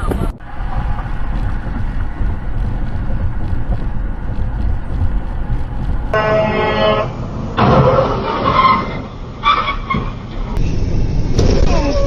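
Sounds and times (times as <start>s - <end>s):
wind buffeting microphone: 0.0s - 6.6s
vehicle road and engine rumble: 0.0s - 12.0s.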